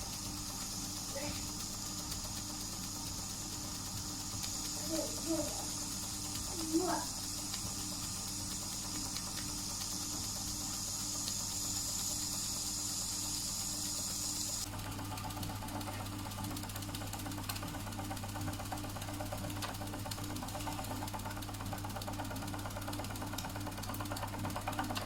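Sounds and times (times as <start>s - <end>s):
high steady steam hiss: 0.0s - 14.7s
model steam engine clatter: 0.0s - 25.0s.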